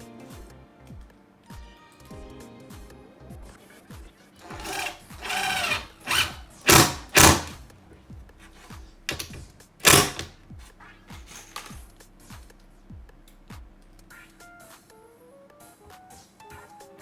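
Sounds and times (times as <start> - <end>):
faint background music: 0.0 - 17.0
power drill bursts: 4.4 - 7.6, 9.1 - 10.3.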